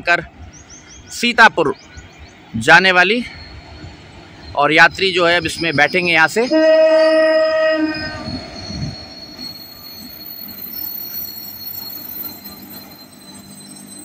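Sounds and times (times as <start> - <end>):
passenger train rumbling past: 0.0 - 14.0
high wheel squeal: 2.4 - 14.0
train horn: 6.4 - 8.4.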